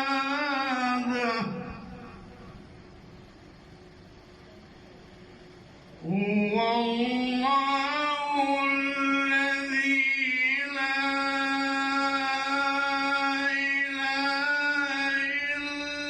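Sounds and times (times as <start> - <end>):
man chanting melodically: 0.0 - 2.6, 6.0 - 16.0.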